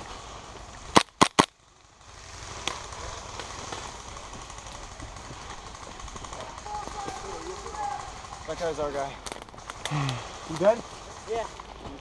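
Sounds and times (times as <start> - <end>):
airsoft gun shots: 0.9 - 1.5.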